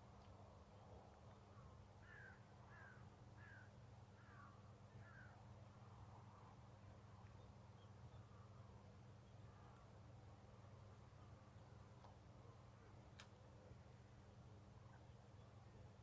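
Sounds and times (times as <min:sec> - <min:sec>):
crow cawing: 0:02.0 - 0:03.6.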